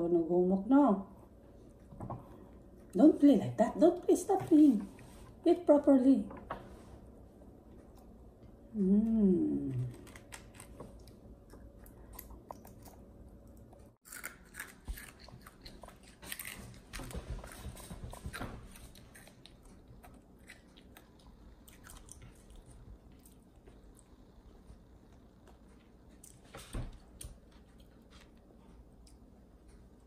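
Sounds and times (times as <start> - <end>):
child chewing and crunching: 9.7 - 30.0.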